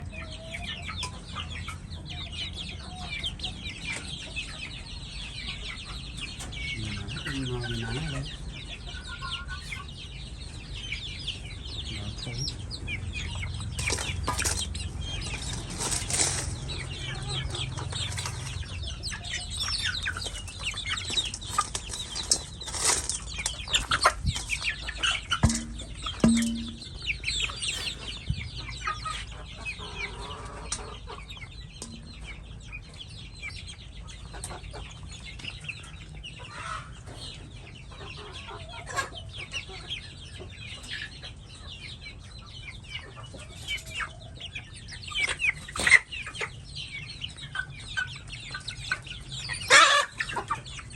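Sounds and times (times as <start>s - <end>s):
chickens clucking: 0.0s - 50.9s
wings flapping and scuffling: 13.7s - 18.8s, 19.4s - 26.9s.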